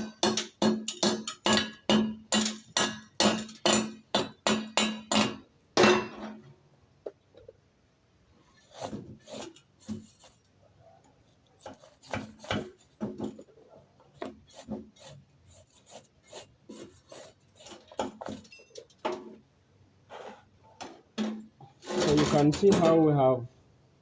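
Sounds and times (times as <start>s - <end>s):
wire brush scrubbing steel: 14.2s - 18.4s.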